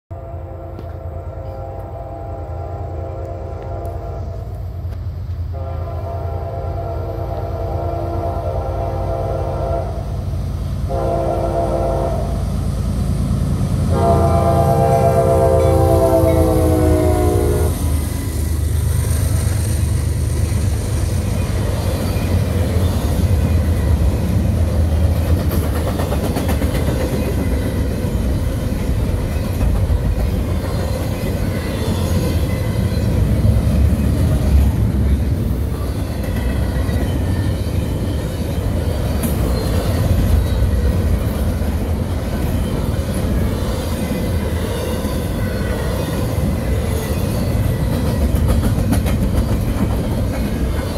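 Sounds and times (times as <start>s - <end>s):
train horn: 0.1s - 4.9s, 5.5s - 12.5s, 13.8s - 18.6s
steel wheels on rail: 0.5s - 50.9s.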